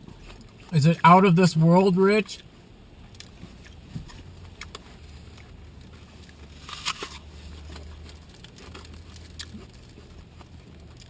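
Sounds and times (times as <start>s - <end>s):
chewing crunches: 3.0s - 11.0s
apple crunching bite: 6.2s - 11.0s.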